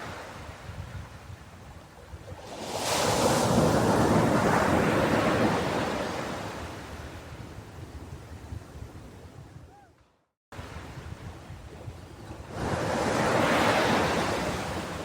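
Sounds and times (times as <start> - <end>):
ocean wave breaking: 12.5 - 15.0.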